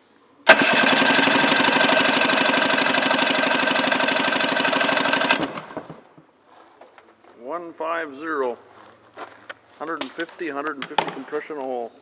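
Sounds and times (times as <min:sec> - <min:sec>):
engine cranked by starter: 0:00.5 - 0:06.1.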